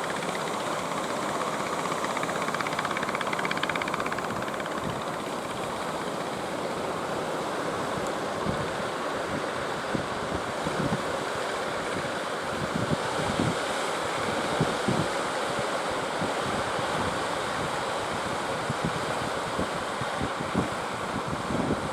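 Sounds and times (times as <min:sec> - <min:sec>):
motor chugging: 0:00.0 - 0:08.1.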